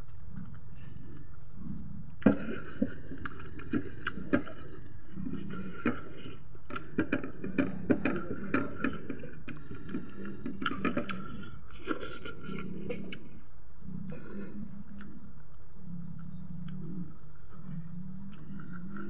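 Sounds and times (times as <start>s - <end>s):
person chewing: 14.1s - 17.1s.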